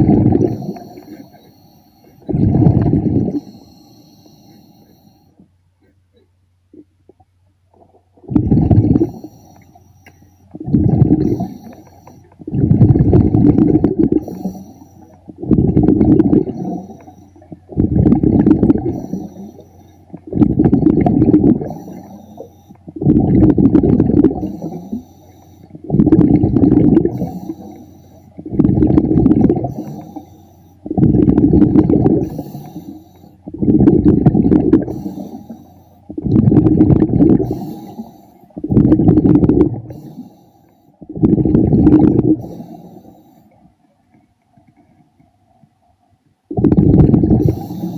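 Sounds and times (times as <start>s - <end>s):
diver exhaling bubbles underwater: 0.0s - 1.4s, 2.2s - 4.7s, 8.2s - 9.6s, 10.5s - 25.1s, 25.7s - 40.3s, 41.0s - 43.1s, 46.5s - 47.9s.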